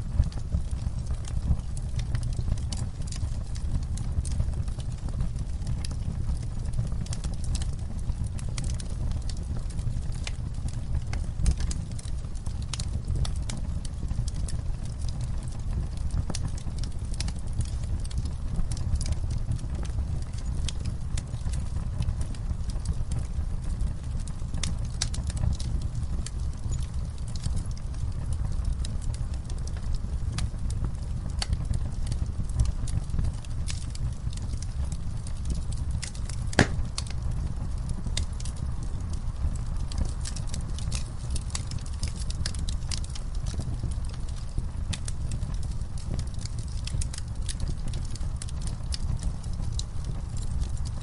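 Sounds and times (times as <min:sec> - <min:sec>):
burning wood crackling and popping: 0:00.0 - 0:51.0
low rumble of flames: 0:00.0 - 0:51.0.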